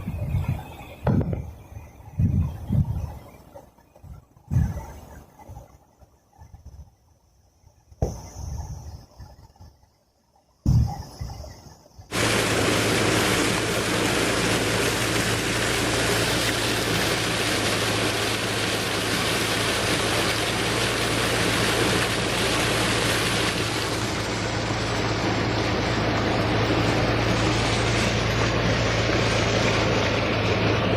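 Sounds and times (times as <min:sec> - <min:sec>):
steady low hum: 0:00.0 - 0:30.9
brief thump: 0:08.0 - 0:08.3
heavy rain hissing: 0:12.1 - 0:30.9.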